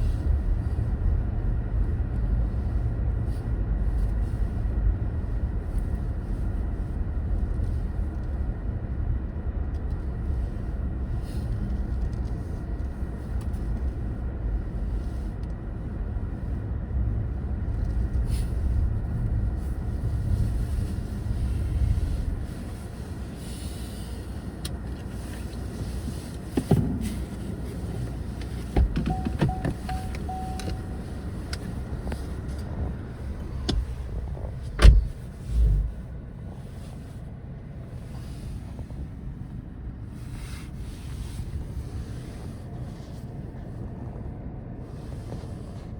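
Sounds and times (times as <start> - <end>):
tyres and engine rumble: 0.0 - 45.9
short steady tone: 29.1 - 31.5.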